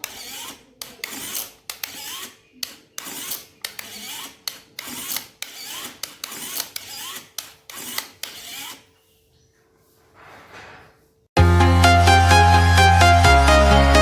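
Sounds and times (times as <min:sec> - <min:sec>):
hand tool rasping strokes: 0:00.0 - 0:09.0.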